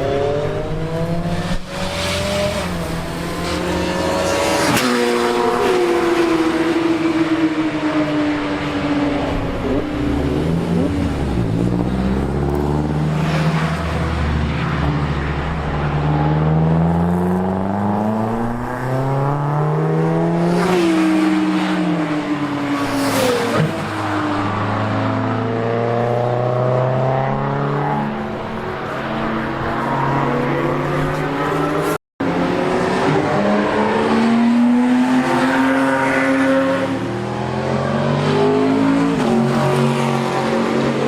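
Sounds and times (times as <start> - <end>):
racing car engines accelerating: 0.0 - 41.0.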